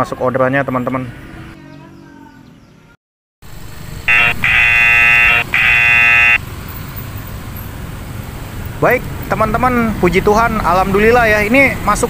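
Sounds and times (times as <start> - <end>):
street traffic: 0.0 - 12.0
phone alert tone: 4.1 - 6.4.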